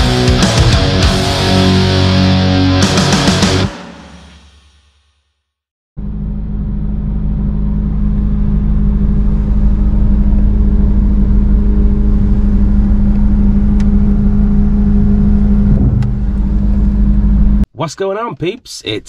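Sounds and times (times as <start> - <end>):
car engine idling: 6.0 - 17.6.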